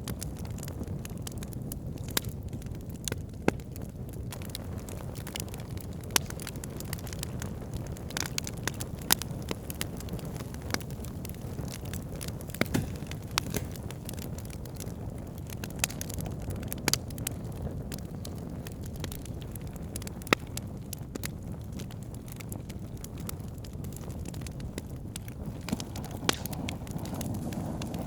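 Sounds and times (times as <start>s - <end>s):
wood crackling and popping: 0.0s - 28.0s
campfire flame rushing: 0.1s - 28.0s.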